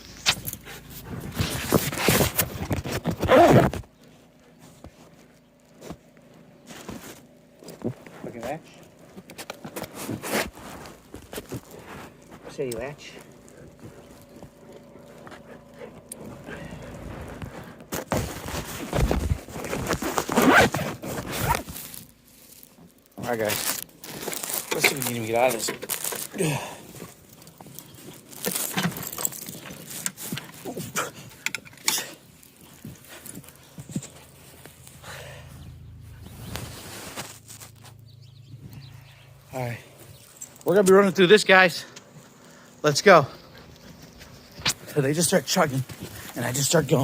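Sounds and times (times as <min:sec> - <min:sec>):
dogs scrambling through snow: 0:09.9 - 0:26.3, 0:26.9 - 0:38.1.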